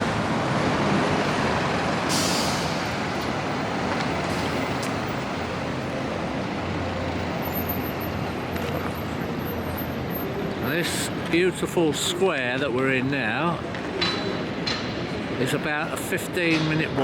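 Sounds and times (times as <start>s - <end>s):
heavy vehicles rumbling: 0.0s - 17.0s
short air brake hisses: 2.1s - 2.9s.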